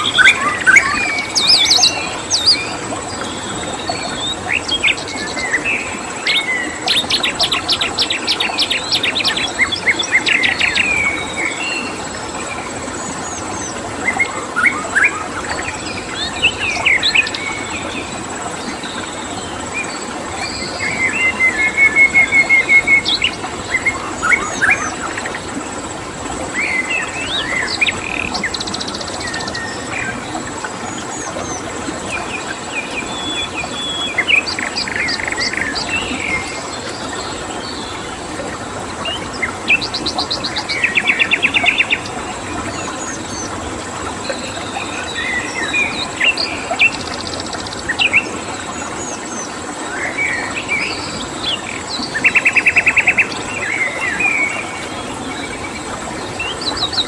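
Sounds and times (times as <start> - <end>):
songbirds chirping and whistling: 0.0 - 4.3, 13.0 - 17.5, 22.5 - 25.6, 27.9 - 30.2, 52.1 - 57.0
running water: 0.0 - 57.0
high-pitched insect drone: 13.1 - 16.4, 23.6 - 25.7.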